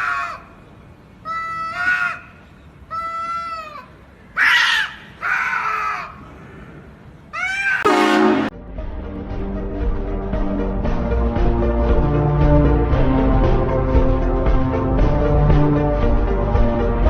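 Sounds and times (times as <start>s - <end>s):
cat meowing loudly: 7.3s - 7.9s
music: 7.9s - 17.0s.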